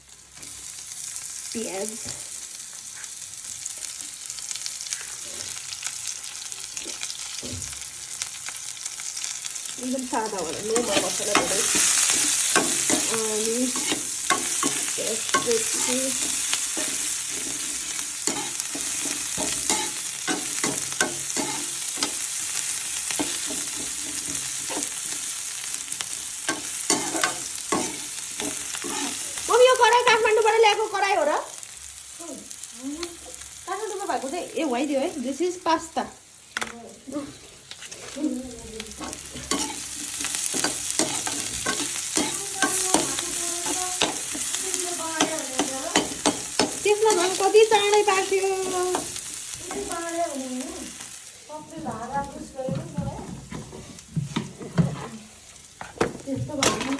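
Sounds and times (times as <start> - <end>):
onions sizzling in oil: 0.0 - 56.9
spatula scraping pan: 9.9 - 30.2, 37.1 - 56.9.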